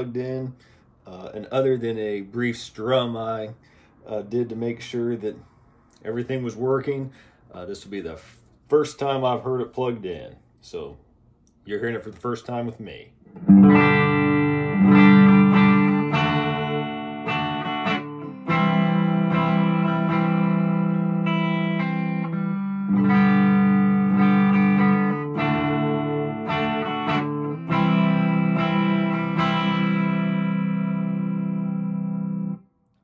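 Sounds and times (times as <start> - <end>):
electric guitar chords ringing: 13.2 - 32.7.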